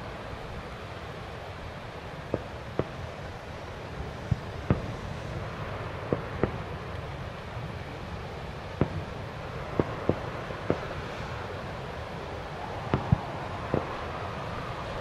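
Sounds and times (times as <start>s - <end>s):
background rumble: 0.0s - 15.0s
firework bangs: 4.2s - 6.8s, 8.8s - 11.3s, 12.9s - 14.1s.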